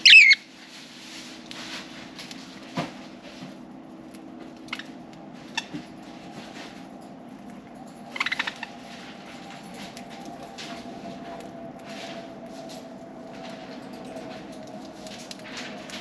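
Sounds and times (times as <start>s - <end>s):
budgerigars chirping rapidly: 0.0s - 0.4s
steady low hum: 0.0s - 16.0s.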